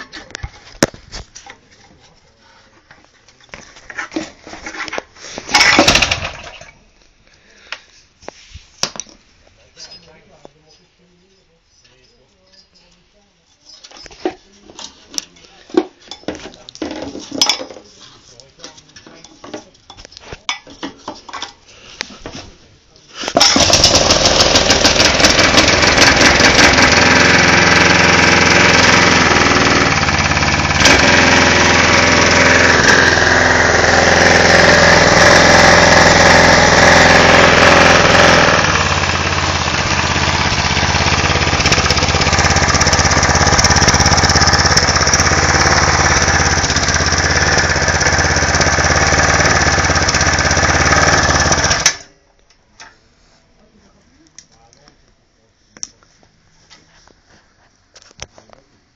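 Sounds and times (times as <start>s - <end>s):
small engine running: 5.6s - 6.6s, 23.4s - 52.0s.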